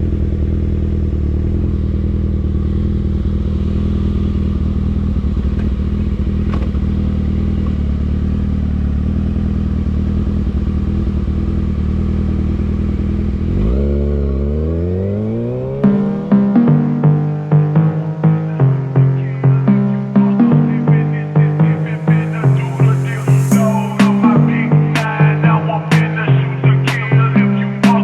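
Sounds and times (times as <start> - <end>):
motorcycle engine running: 0.0 - 19.2.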